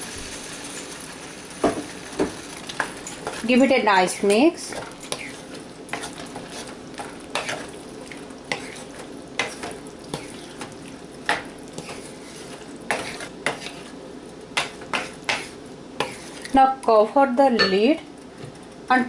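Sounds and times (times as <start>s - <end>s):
sauce sizzling: 0.0s - 19.0s
spoon scraping and knocking pan: 1.6s - 16.5s.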